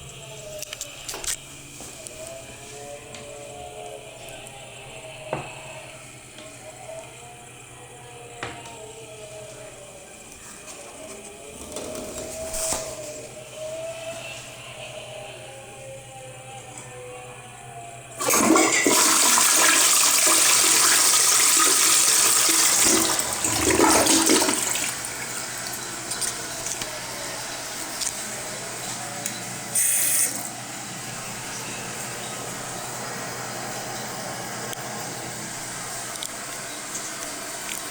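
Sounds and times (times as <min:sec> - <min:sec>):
toilet flushing: 0:18.1 - 0:37.9
water running as toilet refills: 0:18.2 - 0:37.9.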